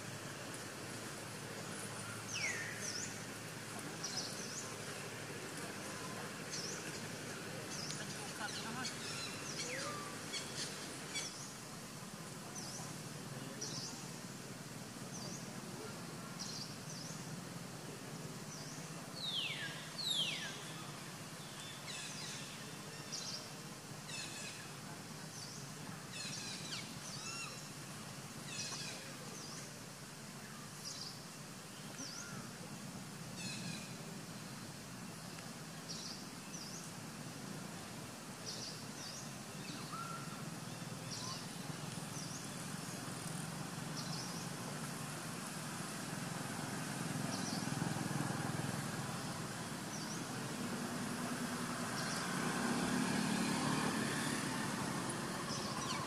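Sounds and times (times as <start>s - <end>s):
birds chirping: 1.5s - 11.9s, 38.4s - 46.2s, 49.1s - 53.3s.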